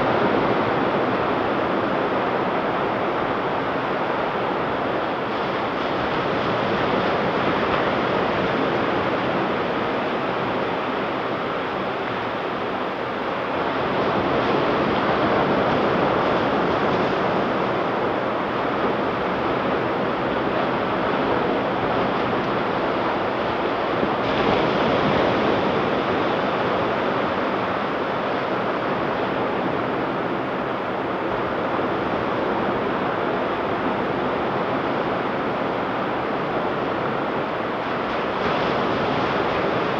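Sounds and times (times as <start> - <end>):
waves breaking on beach: 0.1 - 39.9.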